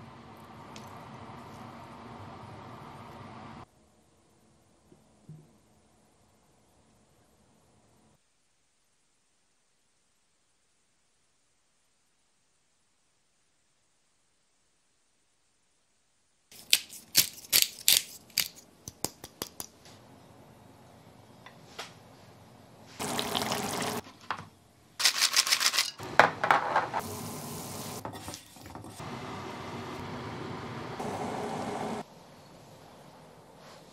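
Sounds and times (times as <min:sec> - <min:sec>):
water running from a tap: 0:23.0 - 0:24.0
dishes clinking and knocking: 0:25.7 - 0:27.0.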